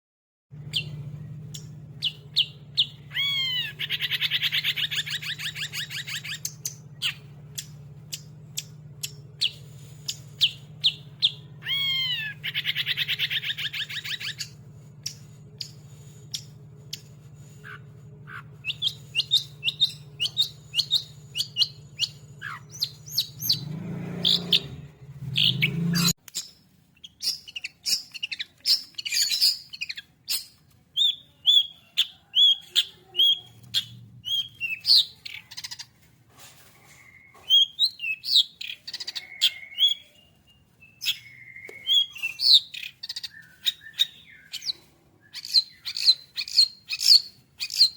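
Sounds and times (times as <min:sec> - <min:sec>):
low hum: 0:00.5 - 0:26.2
shrike singing sharp chips: 0:00.6 - 0:36.0, 0:36.8 - 0:47.9.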